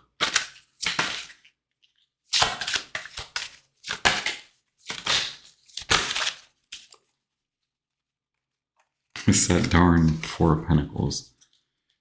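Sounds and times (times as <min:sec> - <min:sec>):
cards being shuffled: 0:02.4 - 0:07.0, 0:09.2 - 0:10.5.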